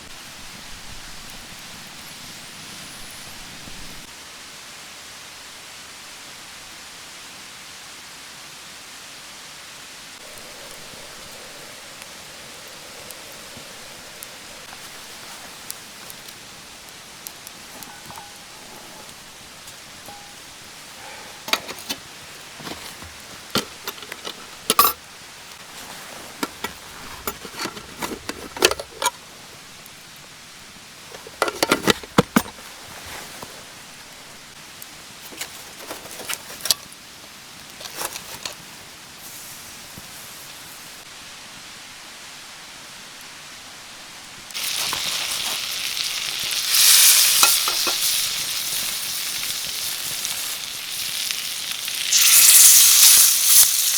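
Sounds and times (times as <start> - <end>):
food sizzling in hot oil: 9.9 - 30.2, 44.5 - 53.9
utensils clinking on cookware: 17.7 - 19.2, 20.0 - 25.0, 26.4 - 29.2, 31.1 - 32.6, 46.7 - 48.5.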